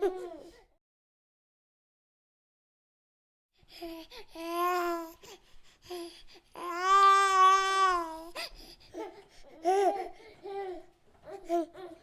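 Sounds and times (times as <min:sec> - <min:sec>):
baby babbling: 0:04.4 - 0:05.2, 0:06.6 - 0:08.4
baby crying: 0:06.6 - 0:12.0.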